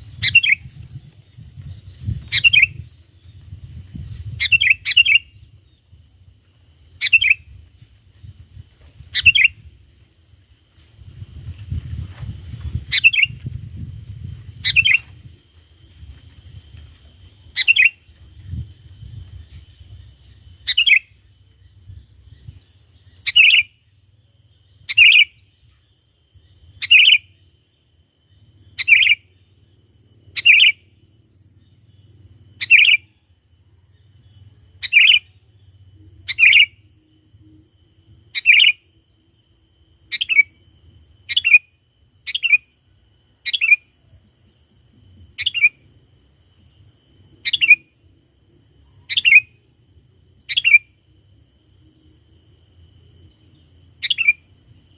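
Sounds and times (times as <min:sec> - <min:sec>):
bulbul calls: 0:02.1 - 0:02.9, 0:07.0 - 0:07.5, 0:09.1 - 0:09.6, 0:14.6 - 0:15.0, 0:17.5 - 0:18.0, 0:32.6 - 0:33.1, 0:49.0 - 0:49.5, 0:50.5 - 0:50.9, 0:54.0 - 0:54.5.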